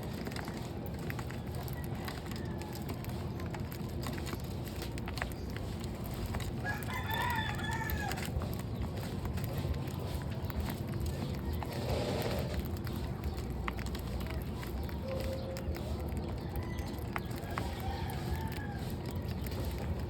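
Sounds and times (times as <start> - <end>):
low background rumble: 0.0 - 20.0
rooster crowing: 6.6 - 8.3, 16.6 - 19.0.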